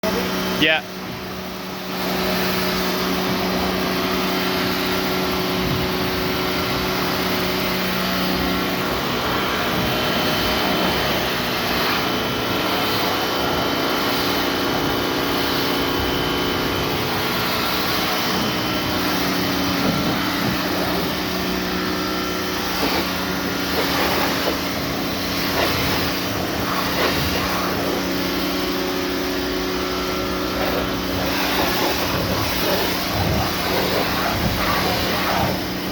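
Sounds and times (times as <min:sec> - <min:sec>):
pressure washer motor hum: 0:00.0 - 0:35.9
water jet spraying: 0:00.1 - 0:35.9.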